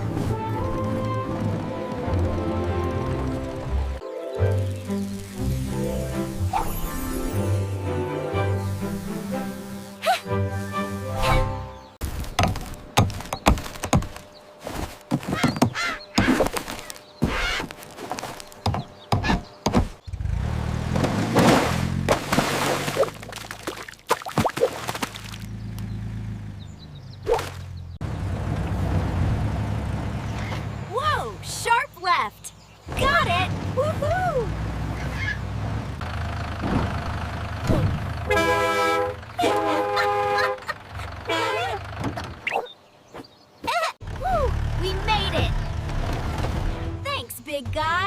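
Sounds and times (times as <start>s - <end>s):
low engine hum: 0.0s - 23.8s, 24.8s - 31.6s, 32.5s - 42.9s, 44.0s - 47.0s
sharp knocks: 12.2s - 14.2s, 18.6s - 20.0s
vehicle horn tooting: 38.2s - 41.9s.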